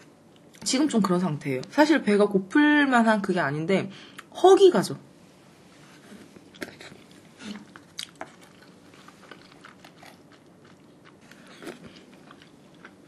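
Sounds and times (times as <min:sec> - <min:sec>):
person chewing food: 0:06.2 - 0:13.0.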